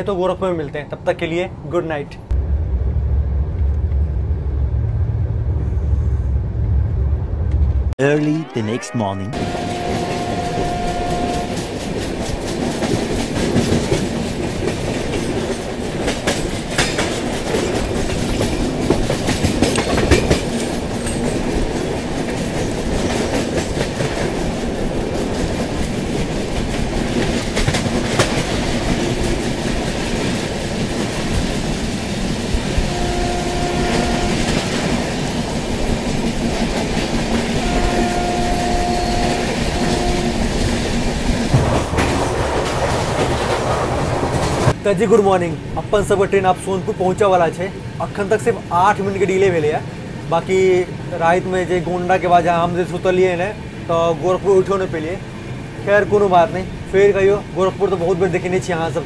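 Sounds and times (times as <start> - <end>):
train rumbling along track: 0.0 - 8.0, 9.4 - 59.0
wheels clattering over rail joints: 11.6 - 31.9.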